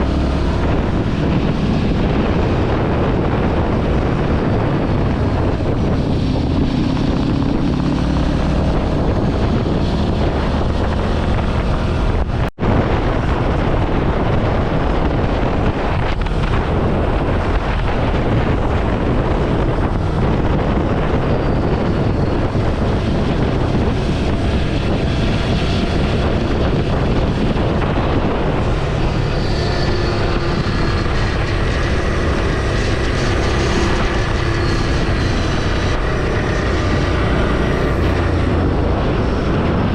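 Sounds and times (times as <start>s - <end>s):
wind buffeting microphone: 0.0s - 39.9s
motorcycle engine running: 13.0s - 39.9s.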